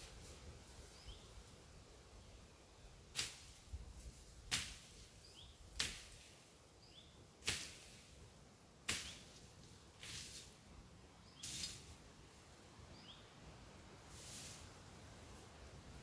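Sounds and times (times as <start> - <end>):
machete chopping through brush: 3.2 - 3.6, 4.5 - 5.0, 5.8 - 6.3, 7.4 - 8.0, 8.9 - 9.4, 10.0 - 10.6.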